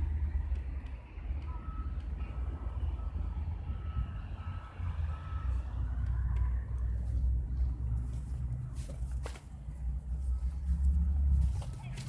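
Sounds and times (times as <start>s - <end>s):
large vehicle engine rumble: 0.0s - 12.0s
reversing alarm beep: 1.4s - 5.9s.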